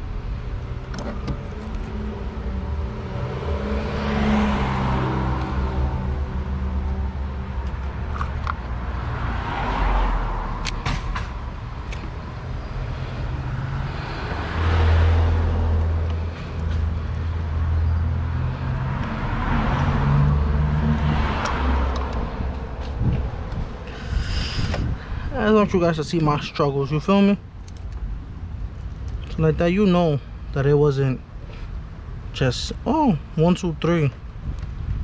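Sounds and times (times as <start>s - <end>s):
low engine hum: 0.0s - 25.4s
cars passing by: 0.0s - 35.0s.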